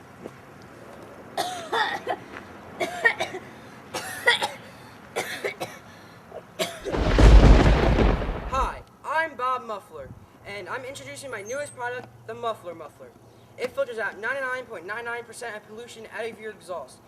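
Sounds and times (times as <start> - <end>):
person coughing: 1.4 - 2.2, 2.8 - 3.4, 4.0 - 5.8, 6.6 - 6.9
loud low rushing blast: 6.9 - 8.8.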